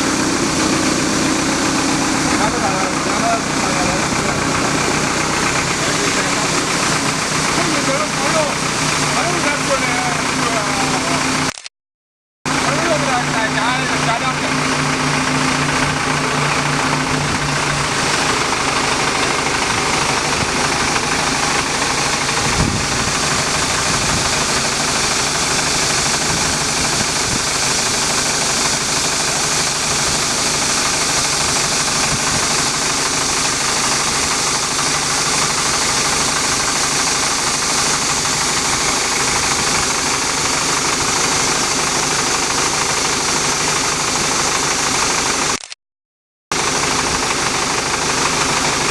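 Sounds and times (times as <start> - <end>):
tractor engine running: 0.0 - 11.7, 12.5 - 45.8, 46.5 - 48.9.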